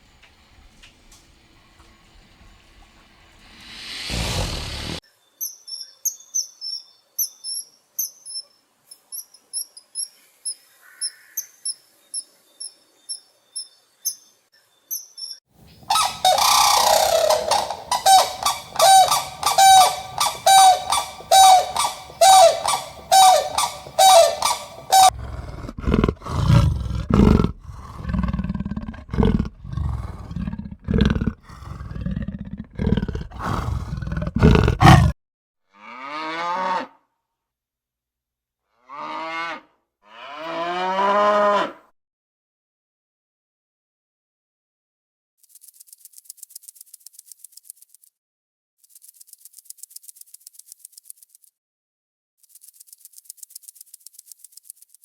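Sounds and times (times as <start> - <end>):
high bird chirps: 5.4 - 25.1
deep pulsing animal calls: 15.8 - 35.1
loud repeated animal call: 15.8 - 35.1.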